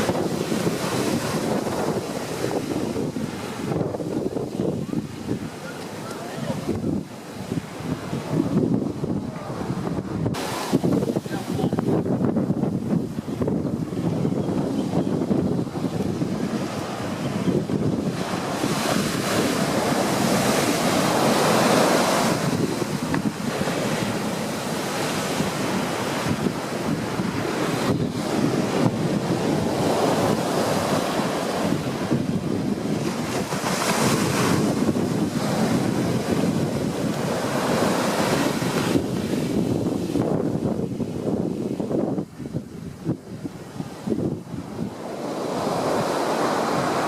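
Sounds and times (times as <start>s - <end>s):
ocean waves breaking: 0.0s - 47.0s
wind buffeting microphone: 0.0s - 47.0s.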